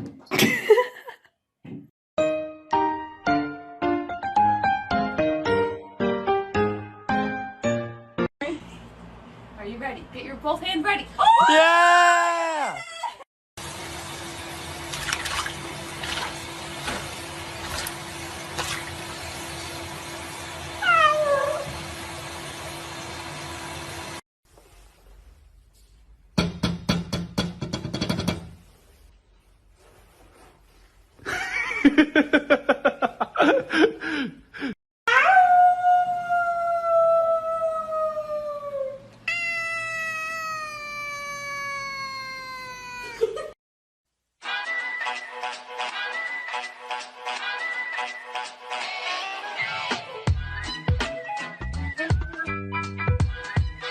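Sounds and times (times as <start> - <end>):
music: 2.2 - 8.3, 44.4 - 53.9
cat meowing: 20.8 - 21.7, 39.3 - 43.3.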